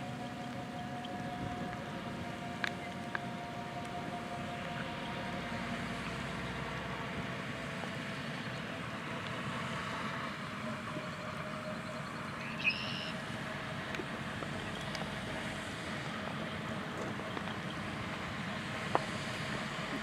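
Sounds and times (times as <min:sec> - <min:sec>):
harvest machinery drone: 0:00.0 - 0:20.0
high-pitched chirp: 0:12.4 - 0:13.1.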